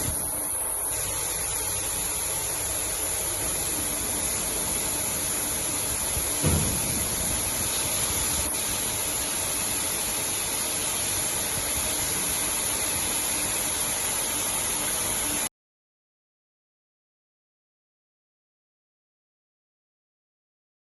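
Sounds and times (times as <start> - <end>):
water jets spraying: 0.0 - 15.5
low thump: 6.4 - 7.8.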